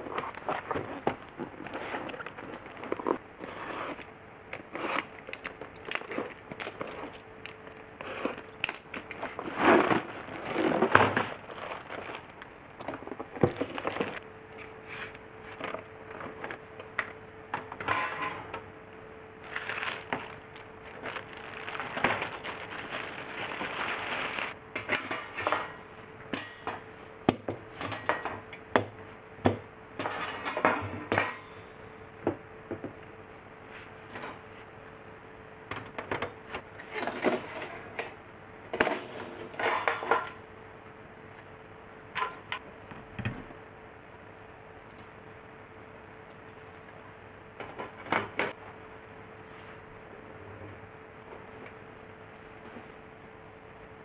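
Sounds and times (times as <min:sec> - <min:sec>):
packaging crinkling: 0:04.9 - 0:14.2, 0:19.4 - 0:24.6.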